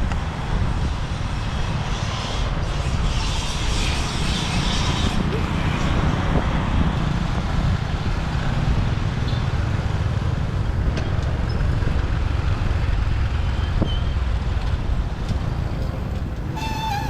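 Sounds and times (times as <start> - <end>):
surrounding traffic: 0.0 - 17.0
motorbike engine rumble: 10.3 - 17.0.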